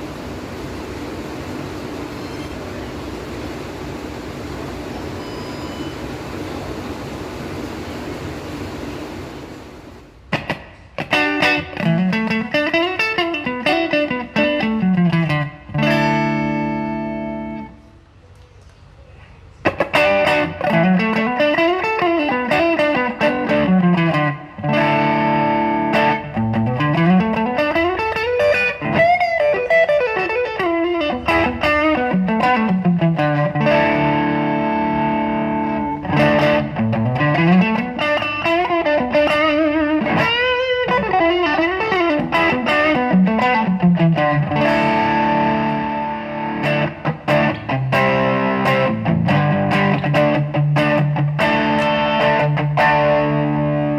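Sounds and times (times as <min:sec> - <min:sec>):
distorted electric guitar: 0:10.3 - 0:17.8, 0:19.6 - 0:53.9.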